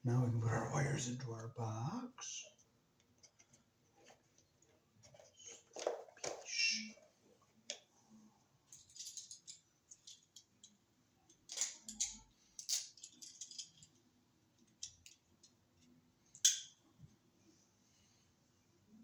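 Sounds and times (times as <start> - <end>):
wire handling clicks and scrapes: 3.2 - 7.1, 8.7 - 14.0.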